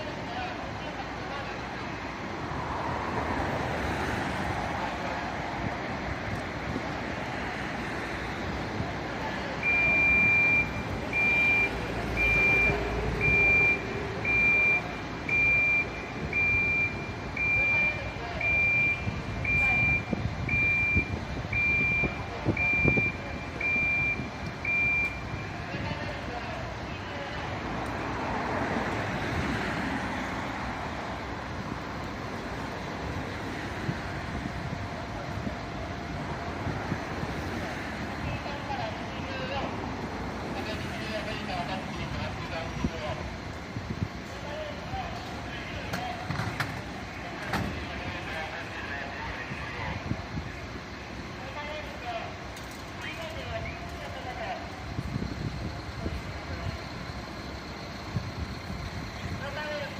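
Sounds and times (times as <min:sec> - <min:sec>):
vehicle reversing alarm beeping: 0:09.4 - 0:27.2, 0:50.7 - 0:59.9.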